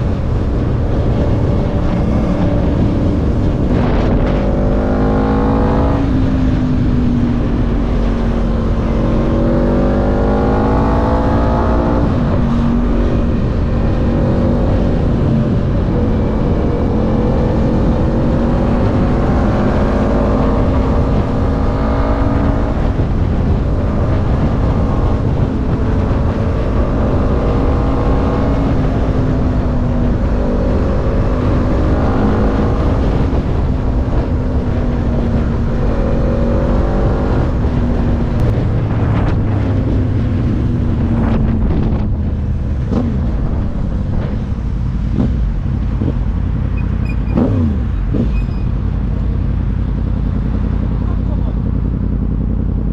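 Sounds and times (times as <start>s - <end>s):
engine accelerating and shifting: 0.0s - 52.9s
wind rumble on microphone: 0.0s - 52.9s.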